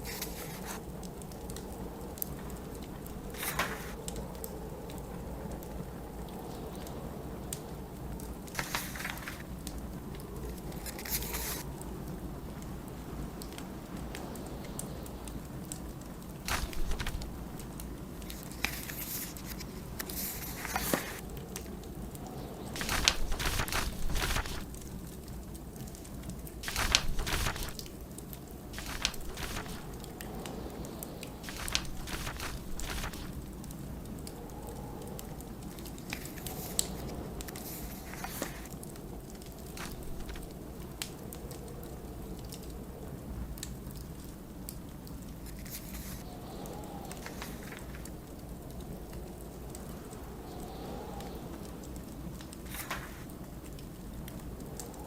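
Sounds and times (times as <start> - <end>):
book pages turning: 0.0 - 0.8, 3.4 - 4.0, 8.6 - 9.4, 10.7 - 11.6, 16.5 - 21.2, 22.8 - 24.8, 26.6 - 28.0, 28.8 - 30.0, 31.4 - 33.4, 36.1 - 38.7, 39.7 - 40.4, 45.5 - 46.2, 47.2 - 48.0, 52.7 - 53.3
fireplace crackling: 0.0 - 42.2, 51.8 - 55.0
blizzard wind rumble: 0.0 - 55.0.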